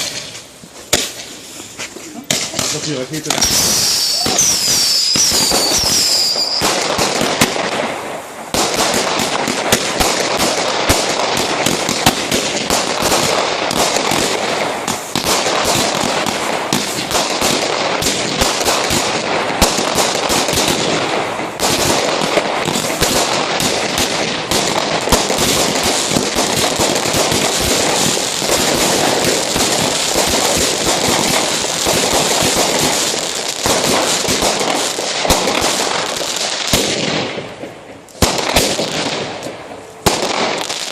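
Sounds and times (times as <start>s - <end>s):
firework bangs: 0.0s - 40.9s
fireworks crackling and popping: 0.0s - 40.9s
firework whistles: 3.4s - 6.9s.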